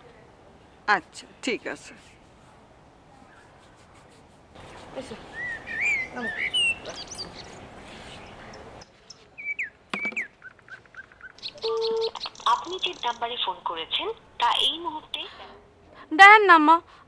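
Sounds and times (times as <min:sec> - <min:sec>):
small birds chirping and twittering: 0:03.1 - 0:15.3.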